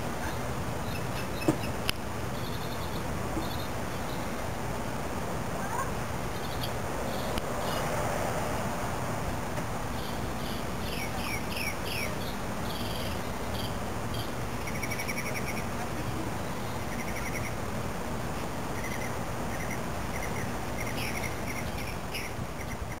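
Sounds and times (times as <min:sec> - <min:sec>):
low background noise: 0:00.0 - 0:23.0
bird calling and trilling: 0:00.2 - 0:04.4, 0:09.9 - 0:17.6, 0:18.8 - 0:23.0.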